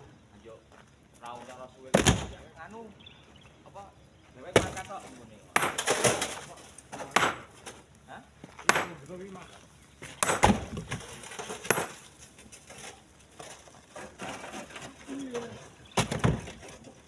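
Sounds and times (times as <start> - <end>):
stones clattering into truck bed: 1.9 - 2.5, 4.4 - 9.4, 10.0 - 17.0.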